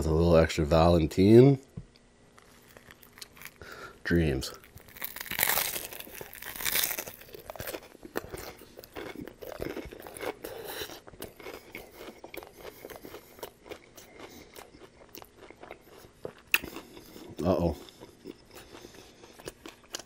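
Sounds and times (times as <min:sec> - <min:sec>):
crunchy chewing: 0:02.3 - 0:20.0
crunchy bite: 0:02.4 - 0:03.9, 0:04.5 - 0:17.1.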